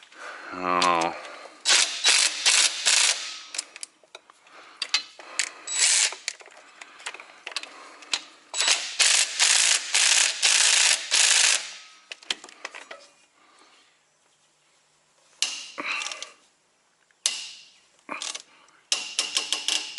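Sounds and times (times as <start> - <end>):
impact wrench hammering: 1.7 - 3.5, 8.6 - 11.9, 17.3 - 17.7, 18.9 - 19.9.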